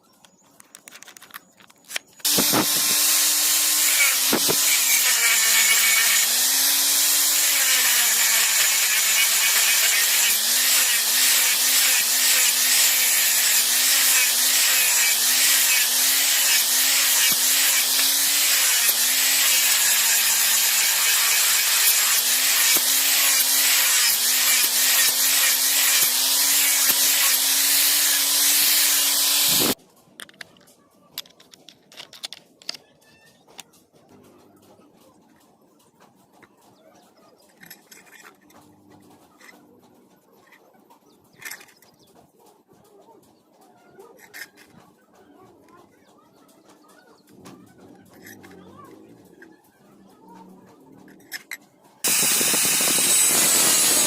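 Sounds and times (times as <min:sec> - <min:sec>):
metal being ground: 0:01.0 - 0:29.8, 0:47.3 - 0:54.0
electric grinder whine: 0:02.2 - 0:29.8, 0:52.0 - 0:54.0.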